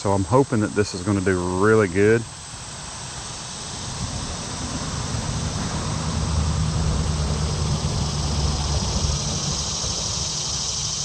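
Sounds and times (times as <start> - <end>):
road vehicle passing: 3.2 - 11.0.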